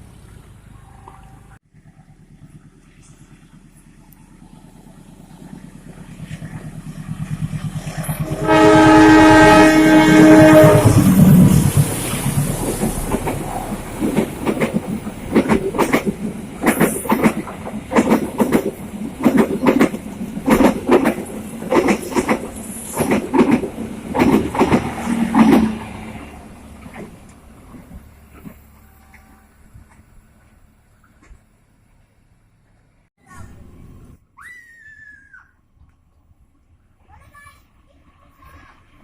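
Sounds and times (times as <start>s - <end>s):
train wheels clattering over rails: 10.2s - 28.7s.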